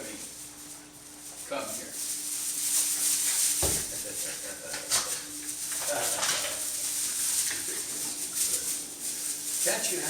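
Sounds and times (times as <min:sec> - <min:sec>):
puppies scuffling and scrabbling: 0:00.0 - 0:10.0.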